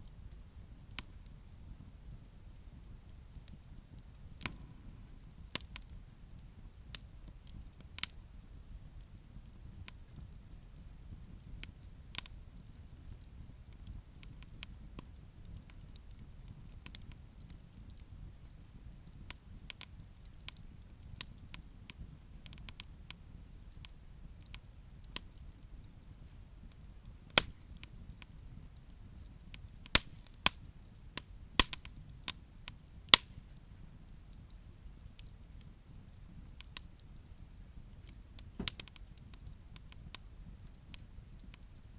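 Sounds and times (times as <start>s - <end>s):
low steady rumble: 0.0s - 41.9s
wood fire crackling and popping: 0.0s - 41.9s.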